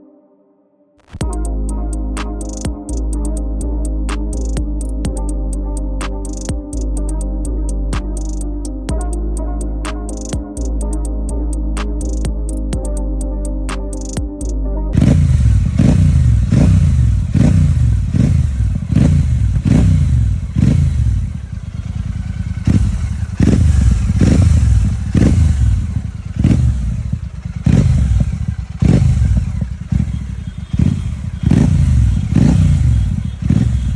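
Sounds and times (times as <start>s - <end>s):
motorcycle engine revving: 15.0s - 33.9s.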